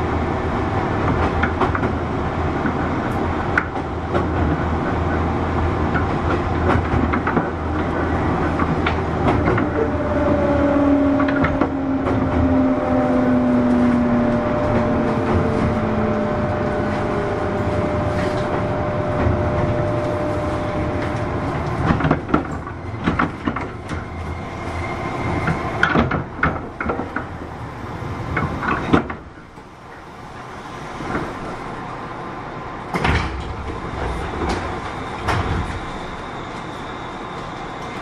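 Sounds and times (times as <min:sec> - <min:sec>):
electric train motor whine: 0:08.8 - 0:26.4.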